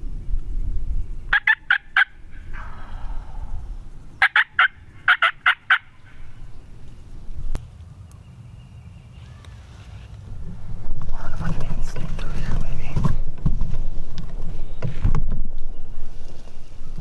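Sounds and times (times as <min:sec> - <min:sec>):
turkey gobbling: 0:01.3 - 0:03.6, 0:04.2 - 0:06.5
low rumble: 0:02.2 - 0:05.1.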